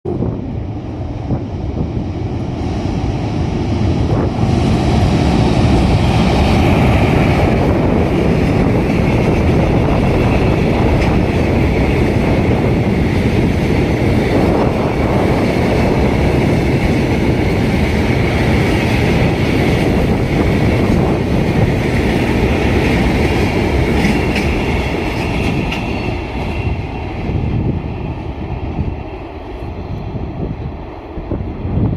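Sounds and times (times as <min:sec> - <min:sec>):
train wheels clattering on bridge: 0:05.2 - 0:27.2.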